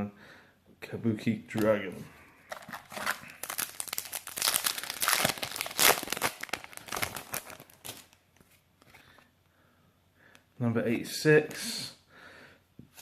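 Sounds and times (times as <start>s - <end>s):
foil wrapper crinkling and tearing: 2.5s - 8.2s.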